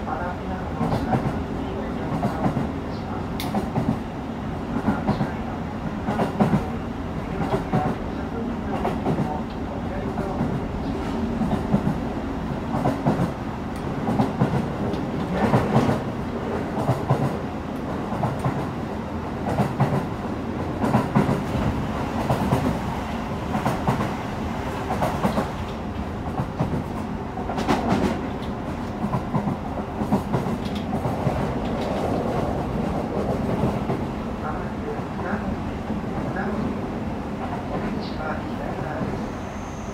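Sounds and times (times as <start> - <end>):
train running rumble: 0.0 - 39.9
clacks over the rails: 0.7 - 2.7, 6.0 - 8.1, 8.7 - 12.0, 12.7 - 18.8, 19.4 - 20.1, 20.8 - 34.1.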